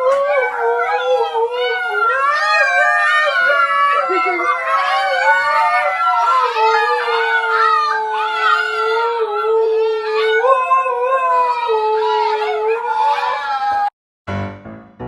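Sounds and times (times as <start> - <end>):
dogs howling: 0.0 - 13.9.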